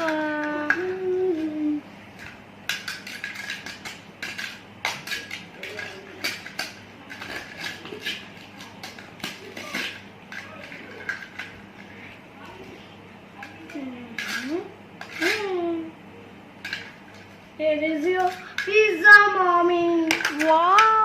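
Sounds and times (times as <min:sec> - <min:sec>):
dishes and utensils clinking: 0:02.2 - 0:12.8, 0:13.4 - 0:15.7, 0:16.6 - 0:17.4.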